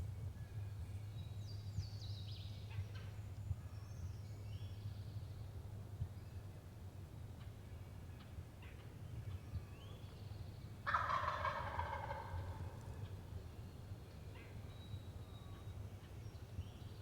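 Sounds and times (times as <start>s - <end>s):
turkey gobbling: 10.8s - 12.8s.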